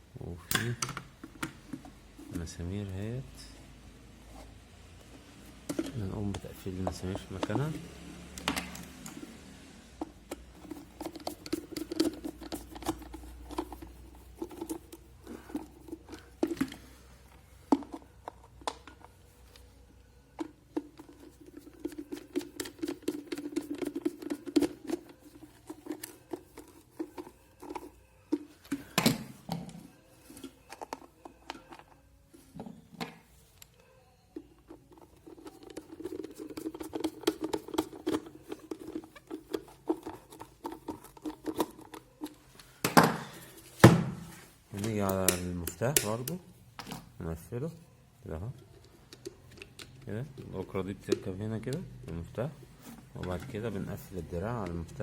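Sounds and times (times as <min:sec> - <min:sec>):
screwdriver clicking and scraping plastic: 0:10.0 - 0:16.8, 0:20.4 - 0:32.0, 0:34.5 - 0:42.7, 0:48.7 - 0:52.2.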